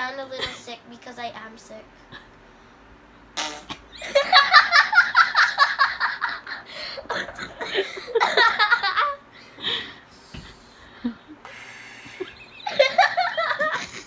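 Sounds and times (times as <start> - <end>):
person laughing: 4.0 - 9.2, 12.1 - 14.0.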